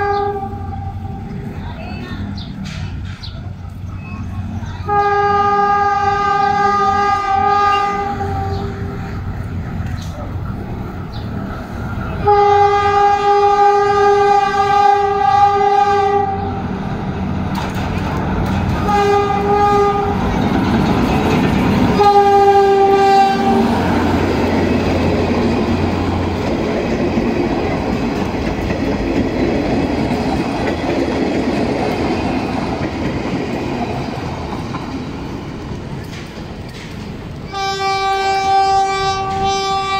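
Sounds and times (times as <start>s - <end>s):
train horn blasts: 0.0s - 1.4s, 4.8s - 9.1s, 12.2s - 16.6s, 18.8s - 20.3s, 21.9s - 23.9s, 37.5s - 39.9s
train wheels clicking over rails: 1.4s - 4.5s, 8.1s - 12.3s, 16.7s - 38.3s.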